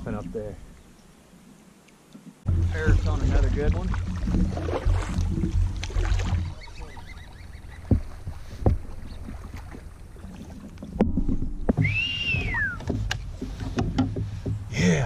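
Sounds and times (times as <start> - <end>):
paddle strokes and sloshing: 1.4 - 14.7
fish thrashing splashes: 2.5 - 11.0.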